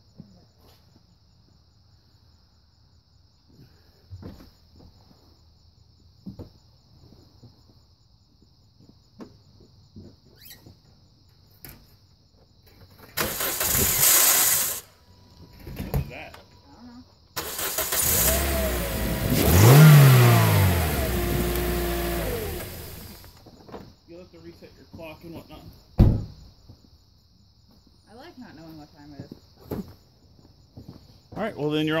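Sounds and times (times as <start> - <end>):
crickets chirping: 0.0 - 32.0
car engine cranking and starting: 13.1 - 14.9, 17.4 - 23.4.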